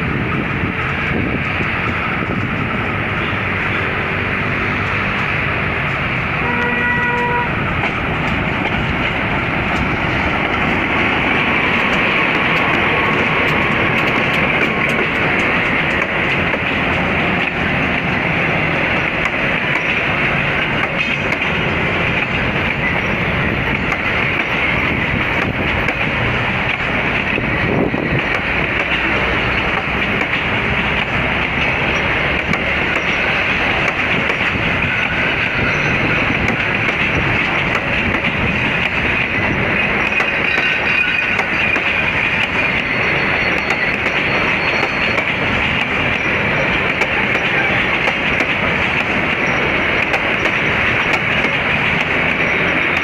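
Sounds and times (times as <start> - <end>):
train rumbling by: 0.0 - 53.0
train horn: 6.4 - 7.6.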